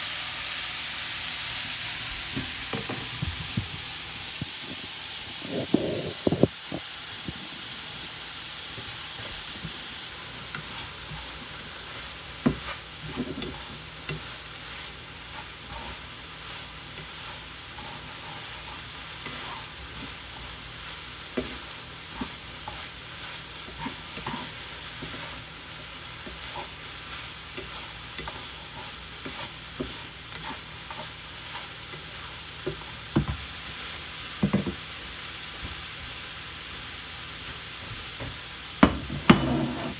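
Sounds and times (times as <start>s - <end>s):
rice sizzling in a pan: 0.0s - 39.9s
utensil scraping a pan: 38.8s - 39.9s.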